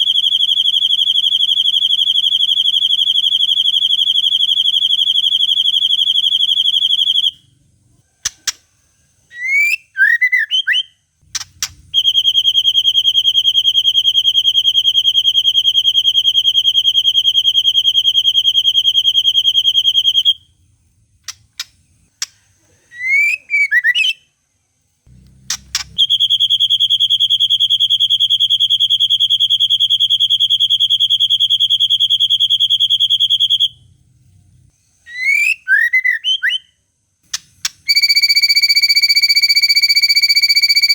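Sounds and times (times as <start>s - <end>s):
sharp bird clicks: 8.2s - 8.7s, 11.3s - 12.0s, 21.2s - 22.4s, 25.5s - 26.0s, 37.3s - 37.9s.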